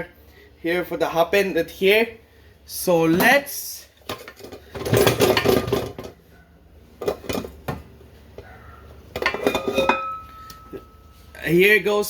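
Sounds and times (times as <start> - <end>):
dishes and pans clattering: 4.1 - 6.2, 7.0 - 7.8, 9.1 - 10.9.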